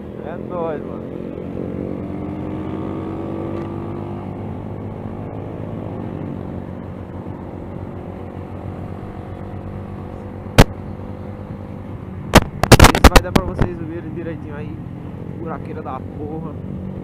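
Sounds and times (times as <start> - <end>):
sharp loud knock: 12.4 - 13.5.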